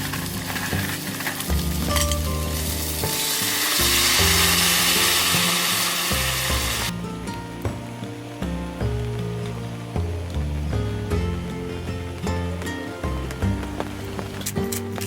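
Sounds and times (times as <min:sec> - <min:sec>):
food sizzling in a pan: 0:00.0 - 0:07.0
background music: 0:00.0 - 0:15.0.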